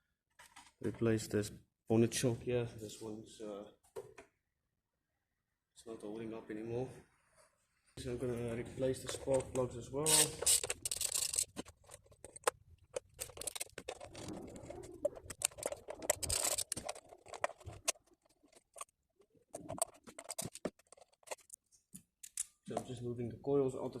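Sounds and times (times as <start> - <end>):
clicks and rattles of engine parts: 9.0 - 18.9, 19.5 - 21.6.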